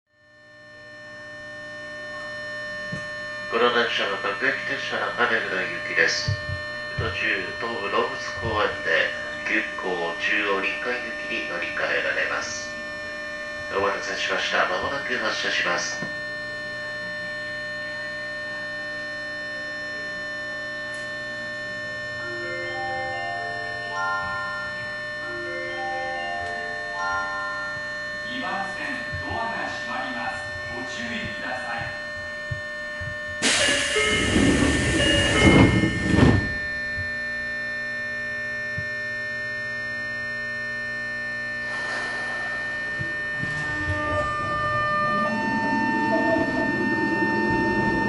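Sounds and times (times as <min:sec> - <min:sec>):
train electrical hum: 0:00.2 - 0:48.0
steady high tones: 0:02.6 - 0:18.8, 0:21.5 - 0:37.0, 0:41.6 - 0:48.0
loud hissing burst: 0:33.4 - 0:35.5.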